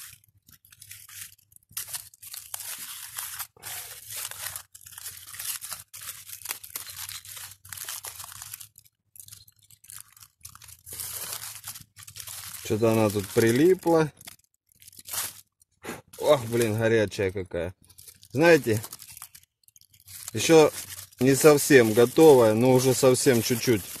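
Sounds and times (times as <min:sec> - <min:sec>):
aluminium foil crinkling and tearing: 0:00.0 - 0:24.0.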